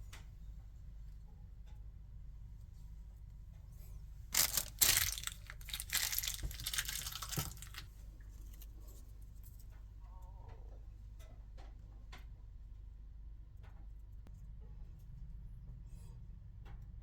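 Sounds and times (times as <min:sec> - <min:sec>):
tearing and crinkling: 0:04.3 - 0:08.7.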